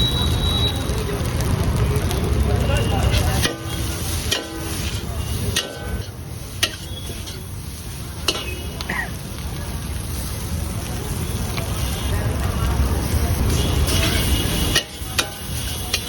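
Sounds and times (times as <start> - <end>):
food sizzling in a pan: 0.0 - 16.0
metal spatula knocking pan: 3.4 - 7.4, 8.3 - 8.6.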